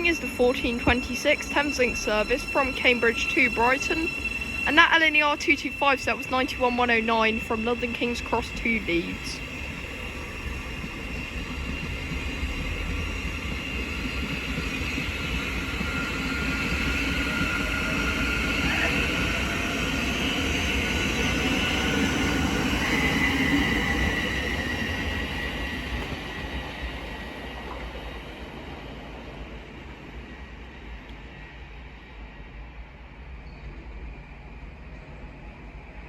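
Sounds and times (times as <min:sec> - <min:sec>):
electric train motor whine: 0:00.0 - 0:27.8.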